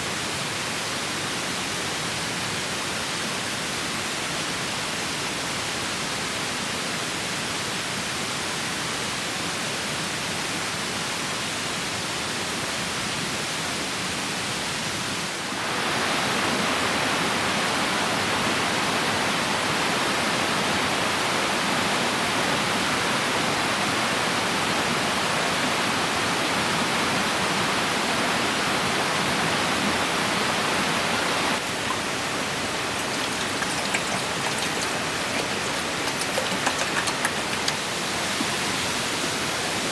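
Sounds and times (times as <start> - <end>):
mountain stream rushing: 28.4 - 39.9.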